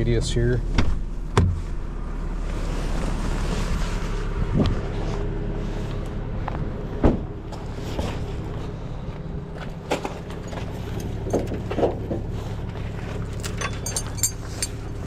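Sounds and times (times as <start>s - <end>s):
truck engine idling: 4.9s - 15.0s.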